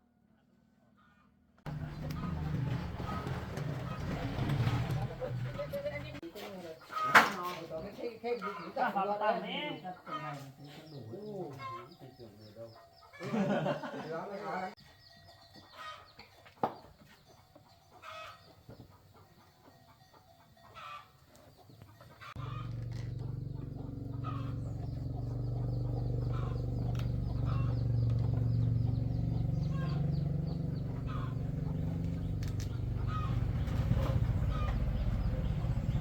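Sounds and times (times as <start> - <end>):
chickens clucking: 1.0 - 14.8, 15.4 - 36.0
motorcycle engine running: 1.7 - 6.2, 22.4 - 36.0.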